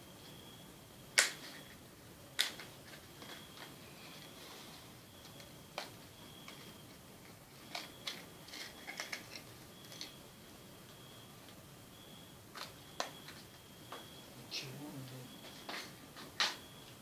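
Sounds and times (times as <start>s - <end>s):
small parts clicking and tapping: 5.2s - 10.2s.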